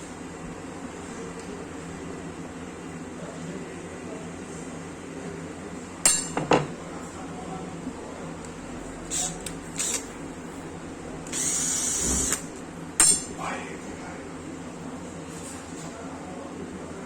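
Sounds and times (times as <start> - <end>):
power drill-driver running: 9.1 - 10.1, 11.3 - 12.6.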